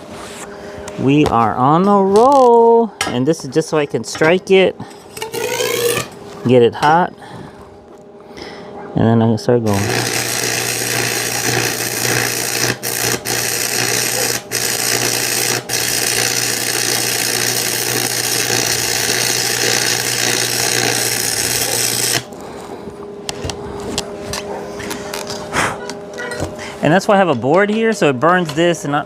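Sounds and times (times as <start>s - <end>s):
welding arc crackling hiss: 5.2s - 6.2s, 9.6s - 22.4s.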